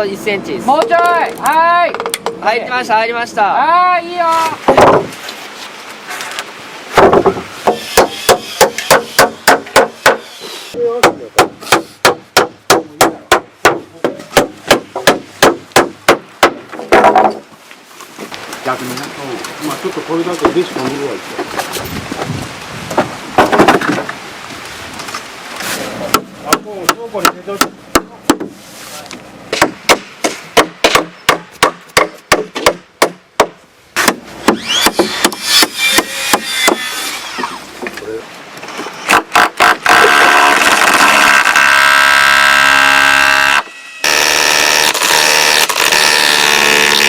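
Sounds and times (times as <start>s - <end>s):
rapid hammer strikes: 7.0s - 10.3s, 11.0s - 17.4s, 26.1s - 28.5s, 29.5s - 37.1s.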